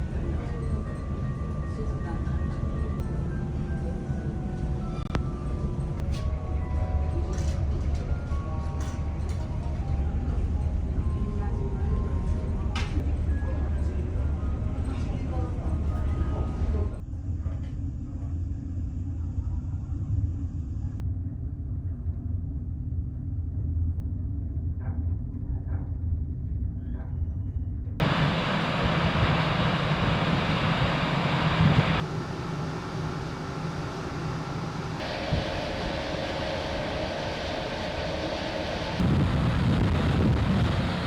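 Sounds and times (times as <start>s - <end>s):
ferry engines rumbling: 0.0s - 21.0s, 28.0s - 41.0s
even rushing noise: 35.0s - 41.0s.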